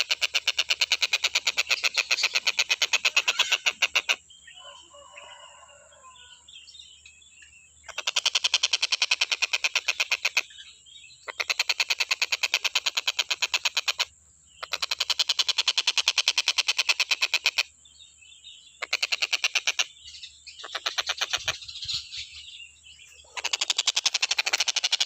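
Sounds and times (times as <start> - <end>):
kingfisher rattling trills: 0.0 - 4.2, 23.2 - 25.0.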